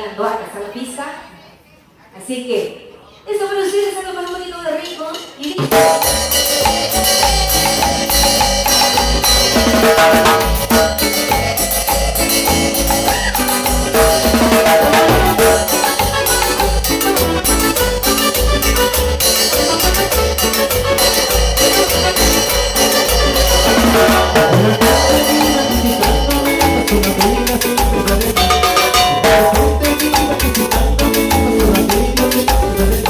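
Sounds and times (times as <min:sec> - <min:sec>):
percussion: 0:03.8 - 0:33.0
band playing live: 0:05.3 - 0:33.0
steady bass beat: 0:05.7 - 0:33.0.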